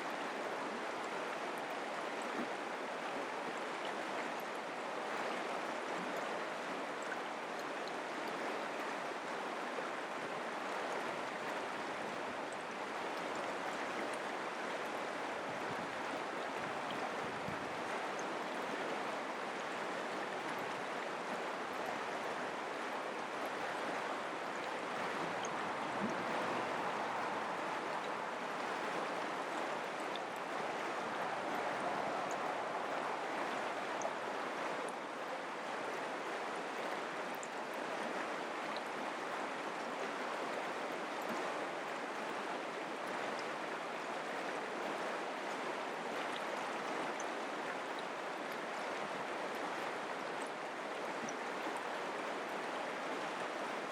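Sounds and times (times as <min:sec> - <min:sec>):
mountain creek flowing: 0:00.0 - 0:53.9.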